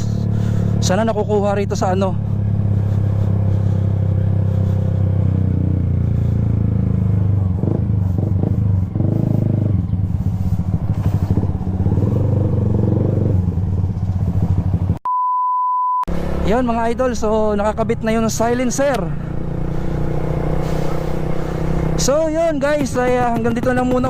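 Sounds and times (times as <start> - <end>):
motorcycle engine idling: 0.0 - 15.0, 20.7 - 24.0.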